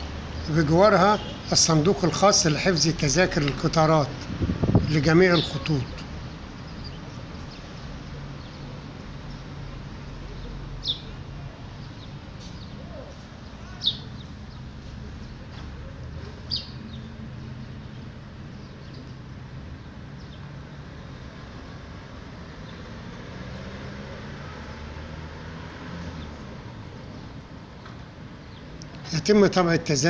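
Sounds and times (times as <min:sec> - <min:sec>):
bird chirping falling calls: 0:04.9 - 0:20.9.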